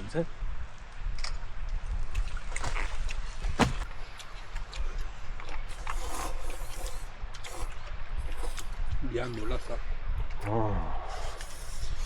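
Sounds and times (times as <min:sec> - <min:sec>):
wind on microphone: 0:00.0 - 0:12.0
stream water splashing: 0:02.2 - 0:04.8
sharp knock: 0:03.6 - 0:03.8.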